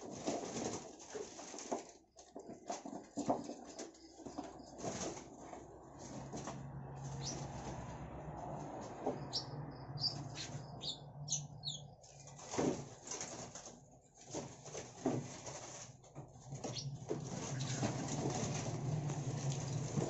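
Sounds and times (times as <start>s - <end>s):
birds fluttering wings: 0.0s - 11.0s, 12.0s - 20.0s
short high bird chirps: 9.3s - 11.9s.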